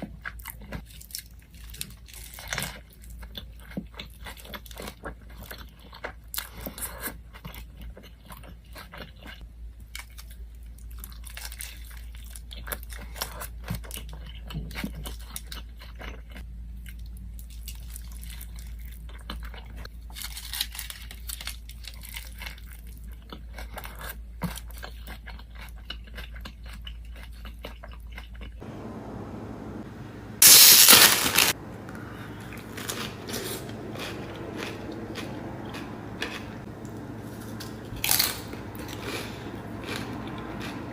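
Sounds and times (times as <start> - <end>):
chewing with wet mouth clicks: 22.4 - 28.6
loud rustle or crunch: 30.4 - 31.6, 32.5 - 40.8.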